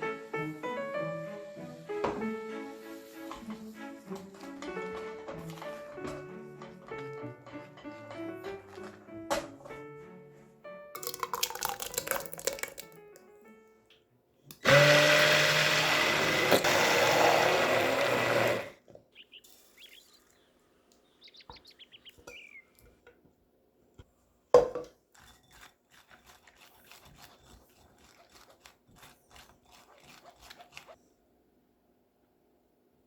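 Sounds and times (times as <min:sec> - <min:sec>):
blender running: 0:14.5 - 0:18.8.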